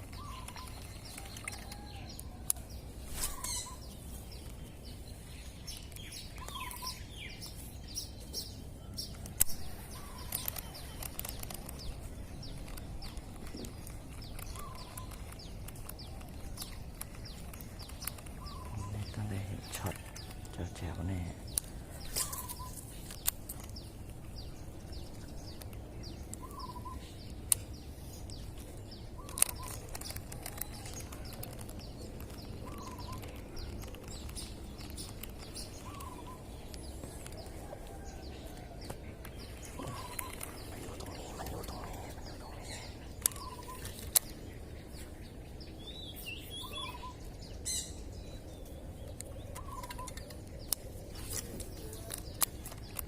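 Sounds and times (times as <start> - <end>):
higher bird chirps: 3.2 - 4.1, 26.1 - 27.2, 39.4 - 48.8
sharp clicks: 9.0 - 20.5, 21.5 - 26.6, 27.2 - 38.0, 38.8 - 44.4, 49.2 - 53.0.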